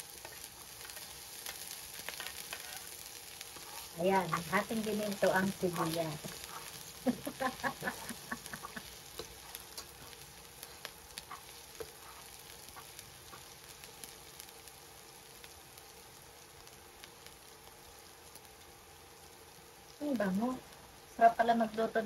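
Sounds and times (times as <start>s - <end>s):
garlic and onion sizzling in oil: 0.0s - 22.0s
metal spatula scraping and tapping pan: 9.1s - 10.0s.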